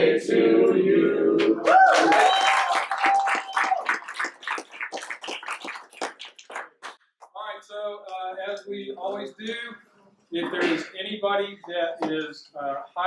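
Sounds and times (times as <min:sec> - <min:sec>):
crowd clapping and cheering: 0:01.4 - 0:07.0
person whooping: 0:01.6 - 0:04.0.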